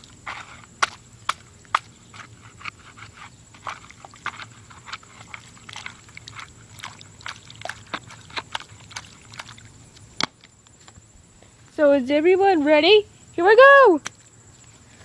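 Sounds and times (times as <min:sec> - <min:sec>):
shovel scraping wet dirt: 0:00.0 - 0:10.0.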